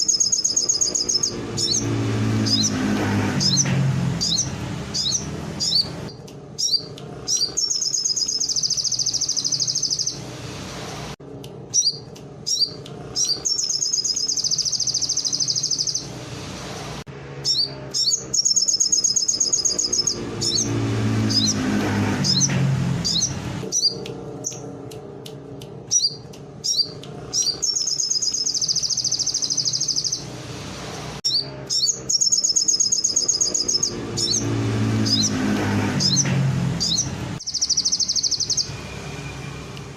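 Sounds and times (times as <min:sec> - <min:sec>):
sunbird singing chirps and trills: 0:00.0 - 0:10.4, 0:11.7 - 0:16.2, 0:17.4 - 0:24.8, 0:25.7 - 0:30.4, 0:31.2 - 0:39.6
low hum: 0:20.0 - 0:28.4.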